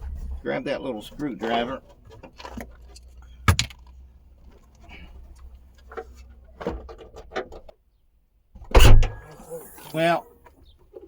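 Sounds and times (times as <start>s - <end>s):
sharp click: 8.7s - 10.0s.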